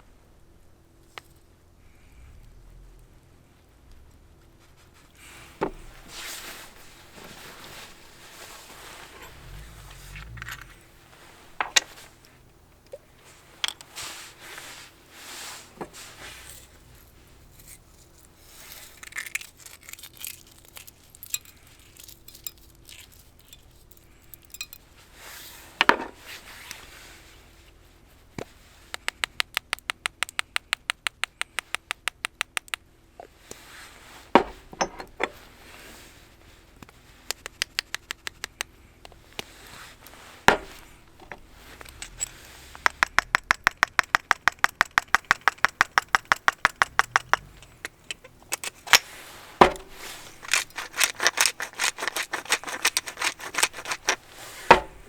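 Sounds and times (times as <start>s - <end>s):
fast run of sharp clicks: 28.9s - 32.8s, 36.9s - 39.2s, 41.8s - 49.0s, 49.7s - 54.8s.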